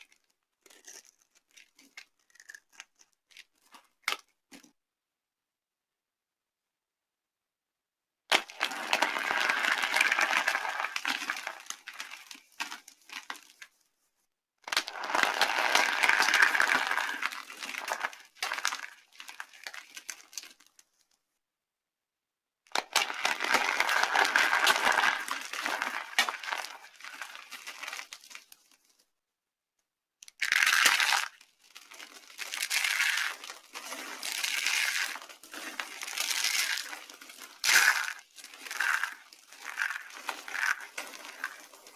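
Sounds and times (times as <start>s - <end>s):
dry soap crunching: 0.0s - 4.7s, 8.3s - 13.7s, 14.7s - 20.9s, 22.8s - 29.0s, 30.2s - 41.9s.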